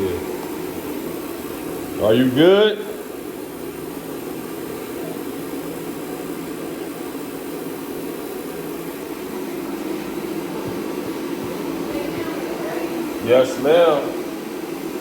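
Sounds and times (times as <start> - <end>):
gas heater humming: 0.0 - 15.0.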